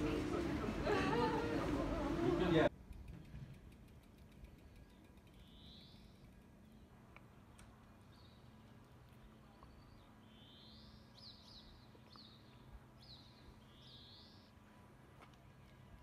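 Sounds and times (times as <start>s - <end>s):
small bird singing: 4.7s - 14.5s.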